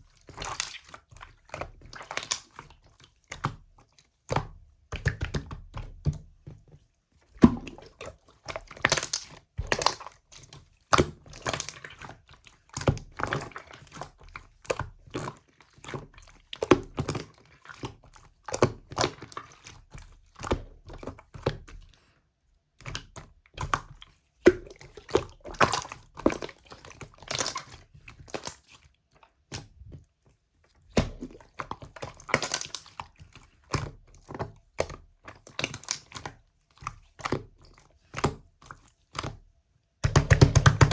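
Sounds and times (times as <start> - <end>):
slime squished by hand: 0.3 - 3.6, 7.4 - 21.9, 30.9 - 39.4, 40.0 - 40.9.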